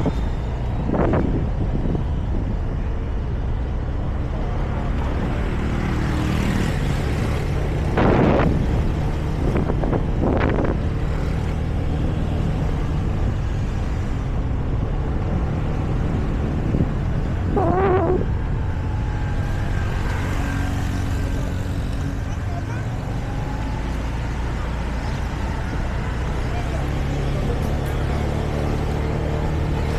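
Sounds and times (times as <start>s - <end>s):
wind and road noise: 0.0s - 29.9s
warbling sound: 17.6s - 18.3s.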